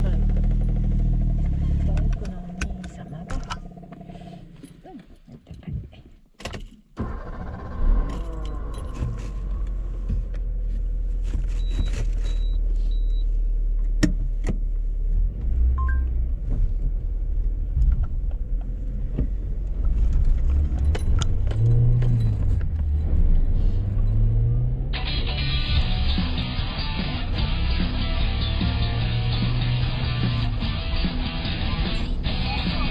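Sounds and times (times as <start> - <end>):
car engine rumbling: 0.0 - 32.9
short electronic beeps: 15.8 - 16.1
rattles and jangles: 20.7 - 23.2.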